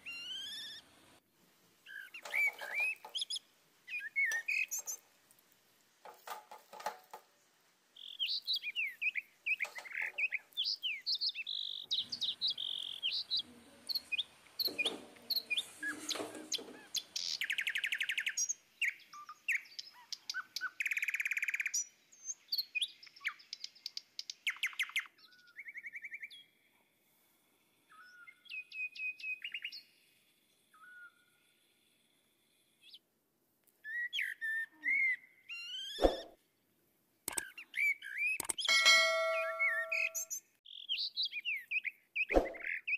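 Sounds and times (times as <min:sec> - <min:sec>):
birds chirping and trilling: 0:00.0 - 0:00.8, 0:01.9 - 0:05.0, 0:08.0 - 0:26.6, 0:33.9 - 0:36.3, 0:37.3 - 0:42.9.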